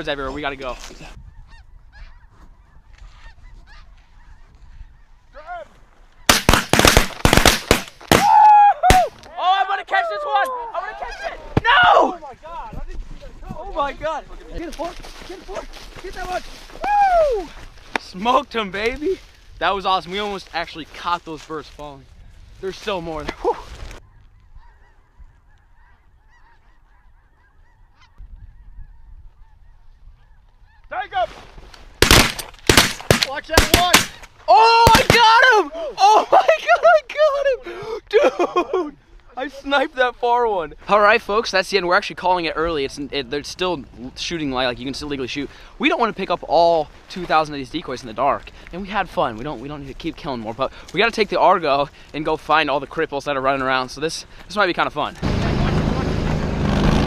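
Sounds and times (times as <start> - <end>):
geese calling overhead: 1.0 - 6.5, 23.8 - 32.0
shotgun blasts: 6.3 - 8.3, 32.0 - 34.2.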